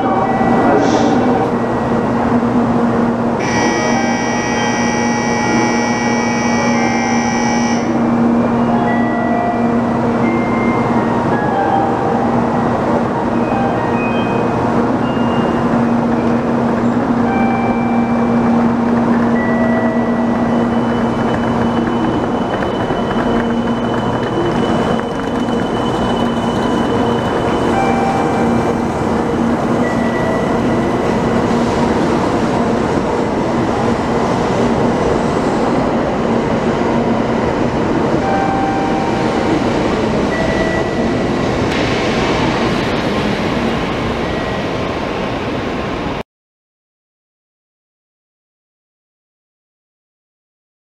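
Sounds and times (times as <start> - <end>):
train cars rushing past: 0.0 - 46.2
short tones: 3.4 - 8.0.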